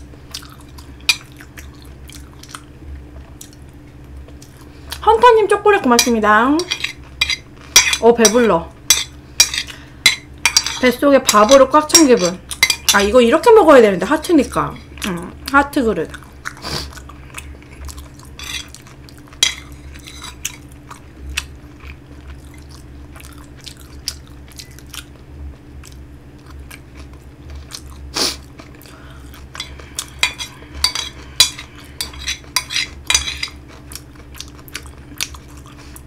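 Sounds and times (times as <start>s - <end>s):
person chewing: 0.2s - 5.0s, 12.4s - 13.0s, 16.1s - 36.0s
metal spoon scraping plate: 6.0s - 13.1s, 18.4s - 18.8s, 19.4s - 20.6s, 29.6s - 33.6s.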